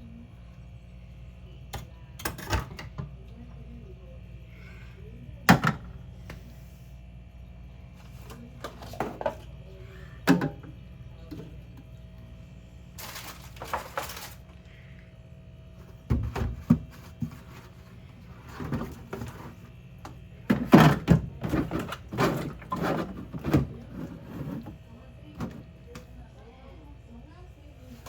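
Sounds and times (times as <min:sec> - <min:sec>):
objects thudding: 0:13.0 - 0:14.4, 0:18.4 - 0:19.7, 0:20.4 - 0:24.8
clattering knocks and thunks: 0:20.5 - 0:24.2.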